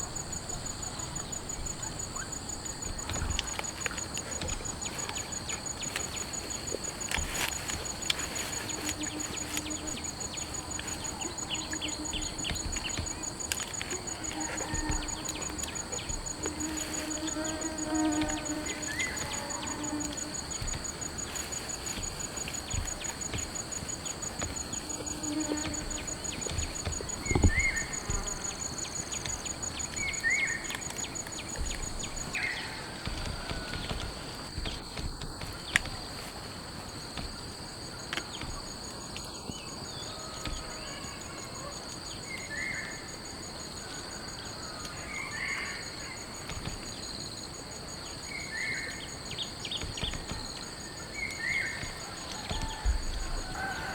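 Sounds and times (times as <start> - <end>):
insects trilling: 0.0 - 53.9
dull thump: 7.1 - 28.5.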